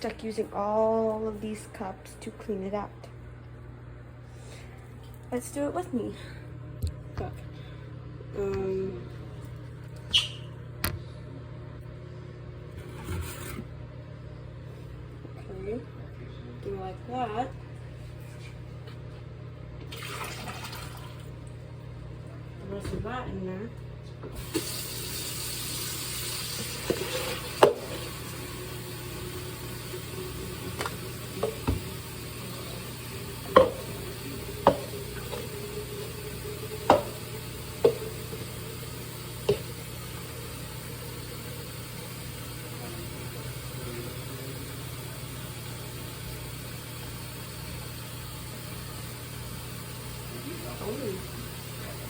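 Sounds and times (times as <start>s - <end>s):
cups clattering in dishwasher: 26.6s - 28.2s, 30.7s - 32.0s, 33.3s - 38.6s, 39.4s - 39.8s.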